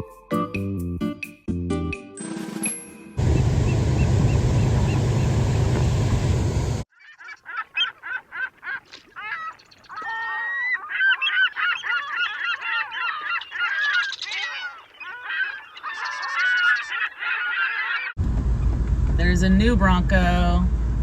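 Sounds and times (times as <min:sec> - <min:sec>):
gulls calling: 0:03.2 - 0:18.2.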